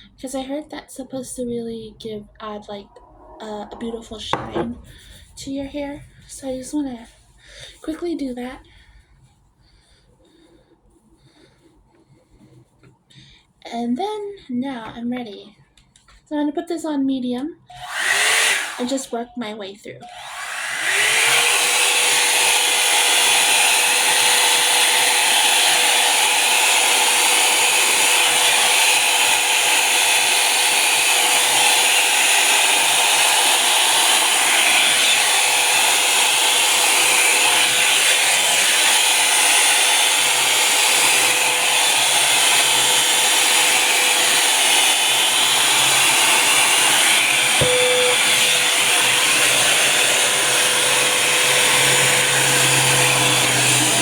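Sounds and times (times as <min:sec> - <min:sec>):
rush of air: 0:02.7 - 0:05.5
hot-air brush motor whine: 0:17.7 - 0:19.0, 0:20.0 - 0:54.0.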